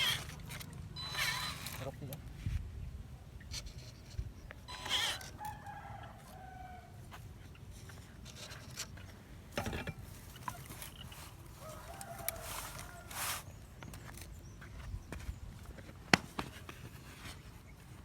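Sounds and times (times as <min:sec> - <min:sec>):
rooster crowing: 0:05.1 - 0:07.0, 0:11.5 - 0:13.5.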